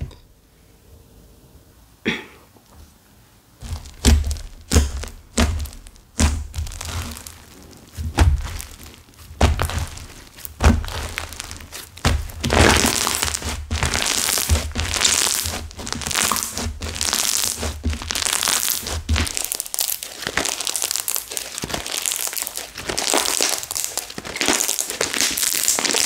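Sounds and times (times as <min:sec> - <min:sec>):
steady crackling: 0:03.6 - 0:26.0
slime squeezed by hand: 0:03.7 - 0:26.0.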